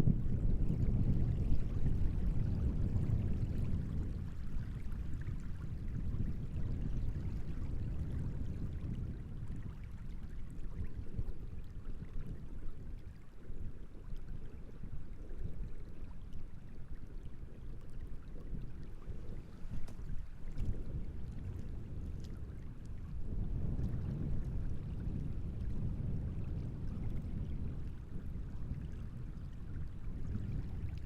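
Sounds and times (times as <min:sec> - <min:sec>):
wind gusting over water: 0:00.0 - 0:31.0
small waves lapping: 0:16.1 - 0:23.1.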